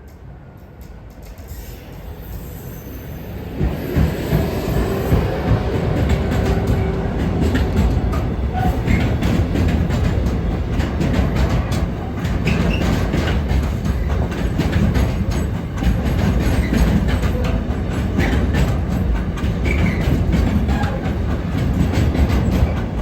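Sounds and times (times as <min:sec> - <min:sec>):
freight train rumbling: 0:00.0 - 0:23.0.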